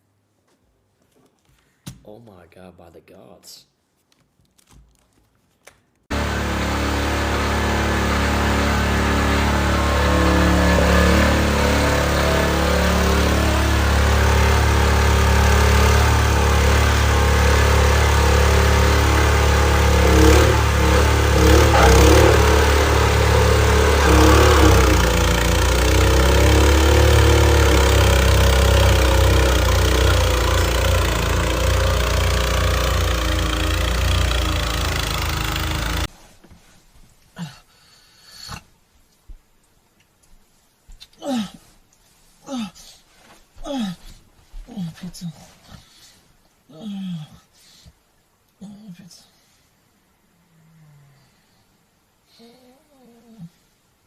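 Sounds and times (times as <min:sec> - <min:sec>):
engine rumbling: 0:06.1 - 0:36.1.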